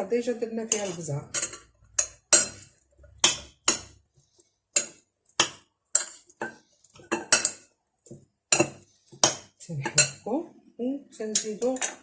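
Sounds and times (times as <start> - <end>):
metal spoon clinking against bowl: 0.7 - 4.0, 4.8 - 7.6.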